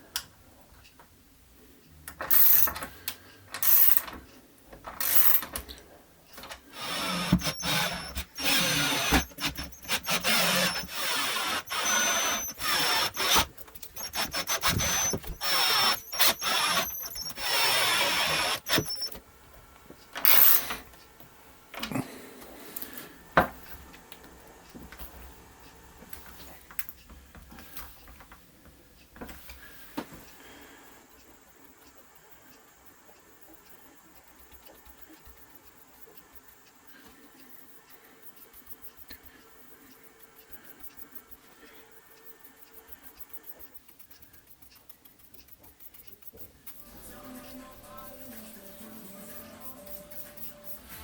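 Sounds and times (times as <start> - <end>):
power drill whining: 3.6 - 4.0, 5.0 - 5.4, 6.4 - 19.2, 20.2 - 20.8.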